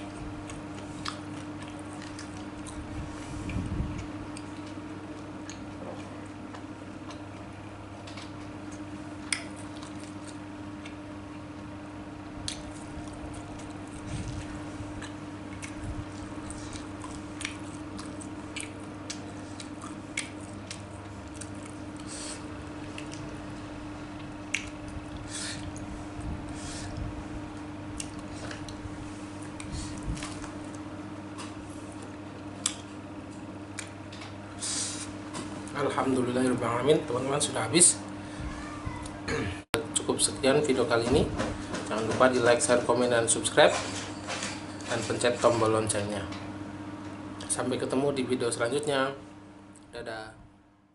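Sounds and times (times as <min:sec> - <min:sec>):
steady low hum: 0:00.0 - 0:50.9
wet chewing and mouth smacks: 0:00.4 - 0:04.8, 0:05.4 - 0:07.5, 0:08.1 - 0:11.4, 0:12.4 - 0:23.4, 0:24.2 - 0:25.9, 0:27.9 - 0:30.9, 0:31.9 - 0:32.9, 0:33.7 - 0:34.0
mouth and utensil eating sounds: 0:12.4 - 0:23.4, 0:27.9 - 0:28.8.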